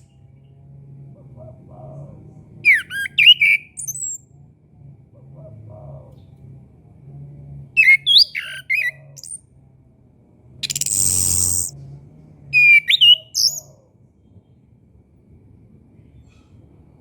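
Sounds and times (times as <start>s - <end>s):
faint low hum: 0.0s - 17.0s
thrush whistled song: 2.6s - 4.2s, 7.8s - 9.4s, 10.6s - 11.7s, 12.6s - 13.7s.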